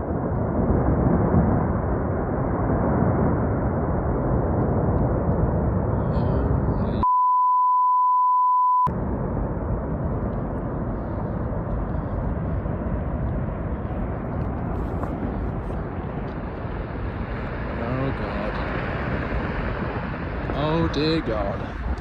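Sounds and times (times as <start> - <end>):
low rushing rumble of avalanche: 0.0 - 7.0, 8.9 - 22.0
wind blast on microphone: 0.0 - 7.0
censor bleep: 7.0 - 8.9.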